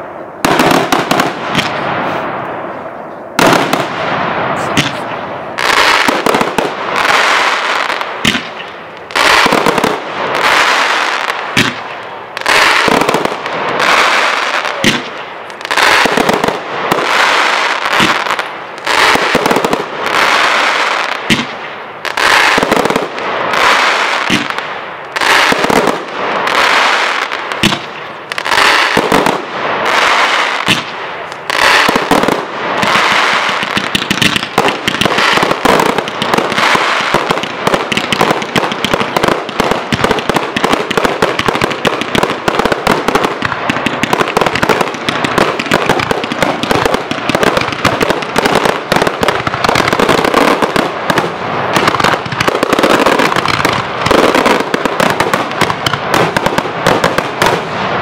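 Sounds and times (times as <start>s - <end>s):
fireworks bursting and crackling: 0.0s - 58.0s.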